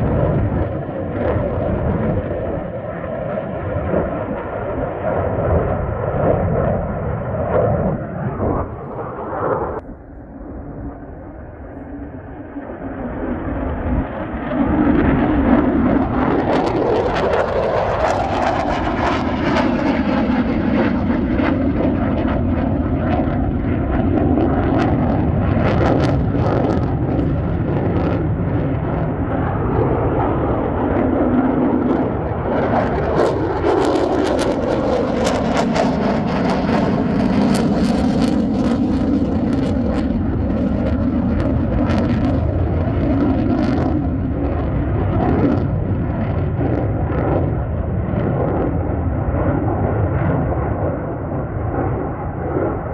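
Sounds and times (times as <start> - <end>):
fighter jet engines on takeoff: 0.0 - 52.9.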